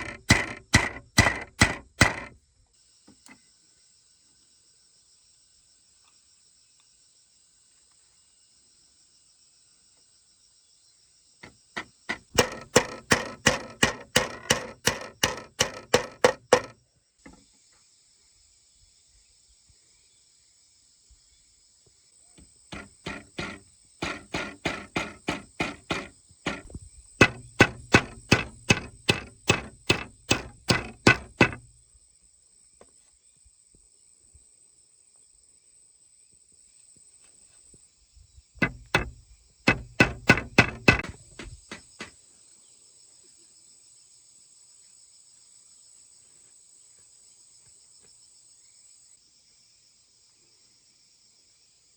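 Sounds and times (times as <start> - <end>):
hand tool striking wood: 0.0 - 2.4, 11.8 - 16.8, 22.7 - 31.7, 38.6 - 42.1
high insect drone: 0.0 - 16.7.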